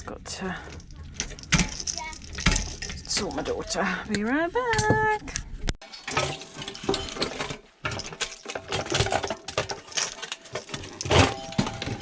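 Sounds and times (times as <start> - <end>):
metal parts clinking and knocking: 0.6 - 3.7, 5.8 - 12.0.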